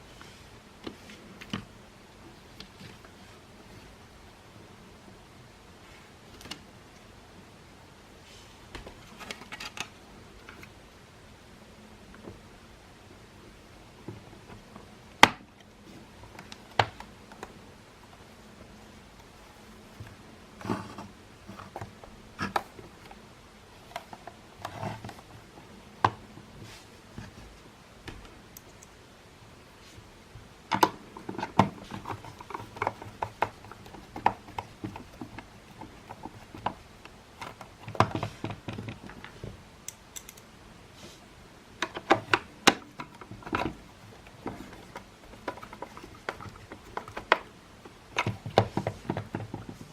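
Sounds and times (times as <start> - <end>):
plastic parts clicking and rattling: 8.9 - 10.8, 30.7 - 39.5, 41.8 - 49.9.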